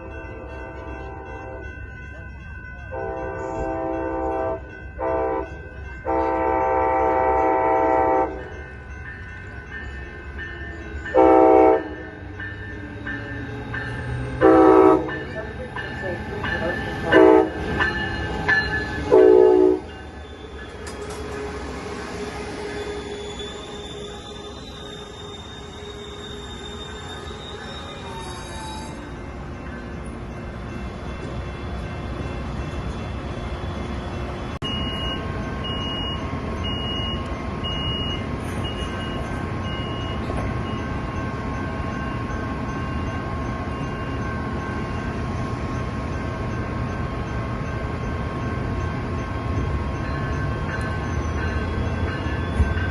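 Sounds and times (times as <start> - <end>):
train horn blasts: 0.0 - 1.7, 2.9 - 8.6, 11.1 - 12.1, 14.4 - 15.2, 17.1 - 17.6, 19.1 - 19.9
train rumbling: 0.0 - 52.9.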